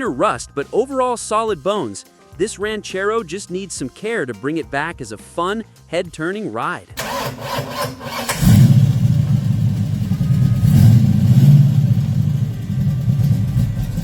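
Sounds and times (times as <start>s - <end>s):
car engine starting and rumbling: 7.0s - 14.0s.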